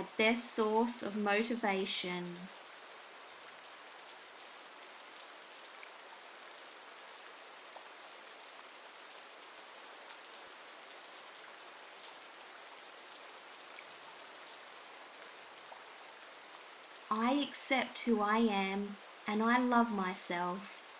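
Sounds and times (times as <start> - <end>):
steady rain falling: 0.0 - 20.9
soft raindrop ticks: 2.5 - 17.1.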